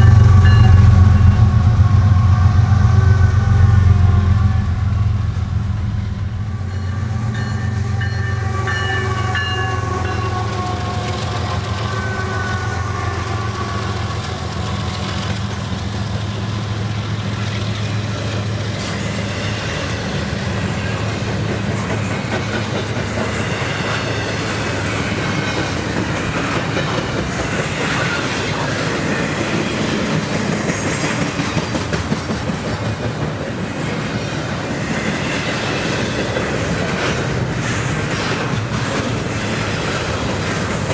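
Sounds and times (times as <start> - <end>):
train horn: 0.0 - 15.3
diesel locomotive engine drone: 0.0 - 40.9
train cars clattering on rails: 13.5 - 40.9.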